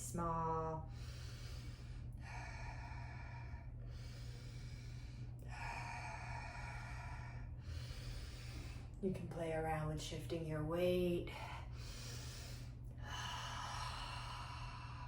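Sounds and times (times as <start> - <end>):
slow deep breaths: 0.8 - 9.0, 11.3 - 15.0.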